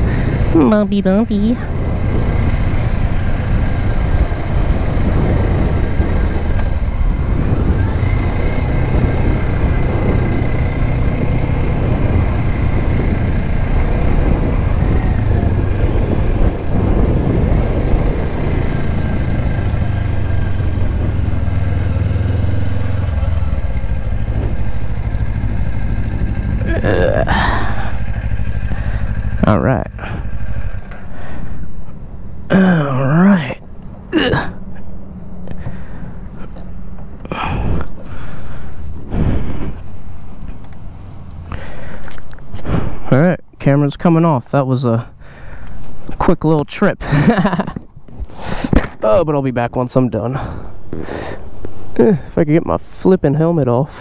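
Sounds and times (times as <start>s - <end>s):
motorcycle engine running: 0.0s - 33.5s
wind and road noise: 0.0s - 54.0s.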